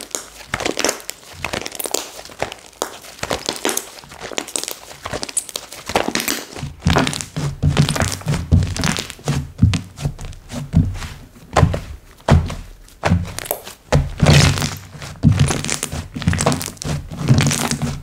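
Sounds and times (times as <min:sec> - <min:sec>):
hands squishing slime: 0:00.0 - 0:18.0
slime pressed down thuds: 0:05.9 - 0:18.0.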